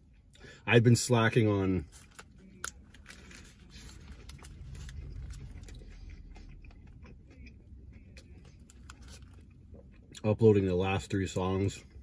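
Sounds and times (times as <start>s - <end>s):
biting into a burger: 1.8s - 10.2s
soft wet chewing: 1.9s - 10.3s.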